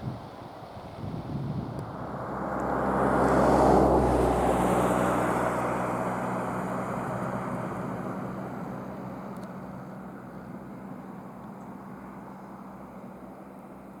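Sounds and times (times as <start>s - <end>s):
motor vehicle passing: 1.3s - 9.2s.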